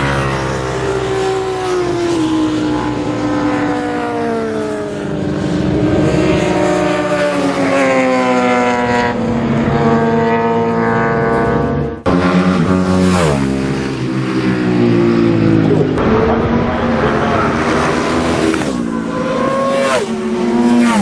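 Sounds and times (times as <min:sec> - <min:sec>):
superbike engines revving: 0:00.0 - 0:21.0.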